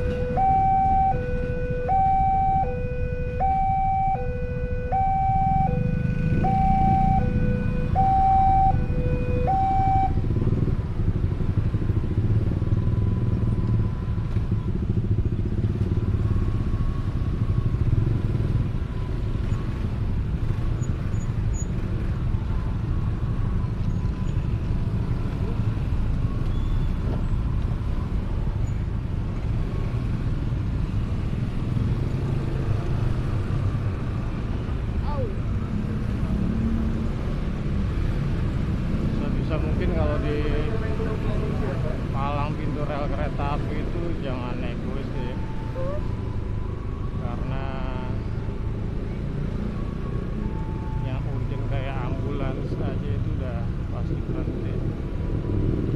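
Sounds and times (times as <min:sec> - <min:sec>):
two-tone siren: 0:00.0 - 0:10.4, 0:12.7 - 0:20.8, 0:39.4 - 0:52.5
road noise: 0:00.0 - 0:55.9.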